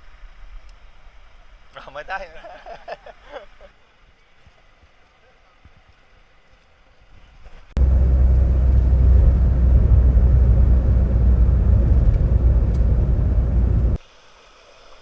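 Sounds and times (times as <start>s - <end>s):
vehicle rumble in motion: 7.8s - 14.0s.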